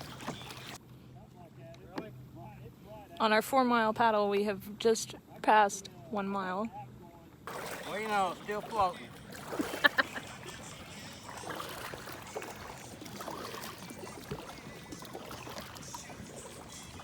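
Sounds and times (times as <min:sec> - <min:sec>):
water trickling and splashing: 0:00.0 - 0:00.8, 0:07.5 - 0:17.0.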